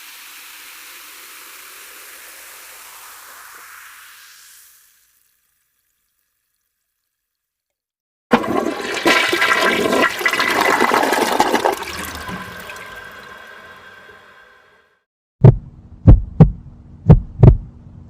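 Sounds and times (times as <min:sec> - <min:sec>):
toilet flushing: 0:08.3 - 0:15.0.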